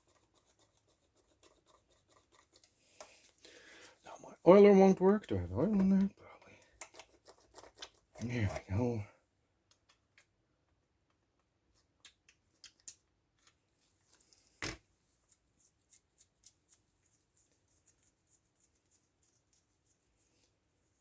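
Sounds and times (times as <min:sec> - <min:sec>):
clicks of handling small parts: 0:12.0 - 0:16.7.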